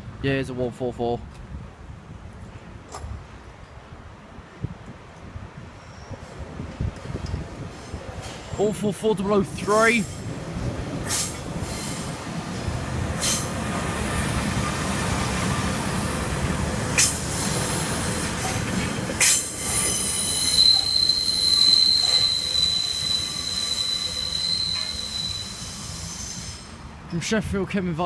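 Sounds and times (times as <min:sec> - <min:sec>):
train rumbling: 0:01.6 - 0:27.2
wheels clacking over rail joints: 0:10.0 - 0:21.0
high steady squeal: 0:19.2 - 0:26.8.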